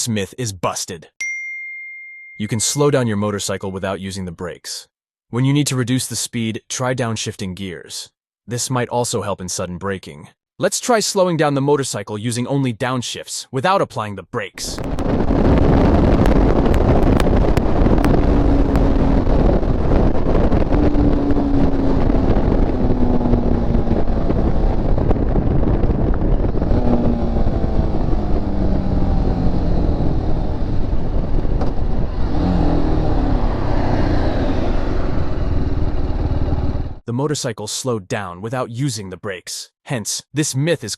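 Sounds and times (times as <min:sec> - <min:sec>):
wind rush: 0:14.6 - 0:37.0
motorcycle engine downshifting: 0:14.8 - 0:37.0.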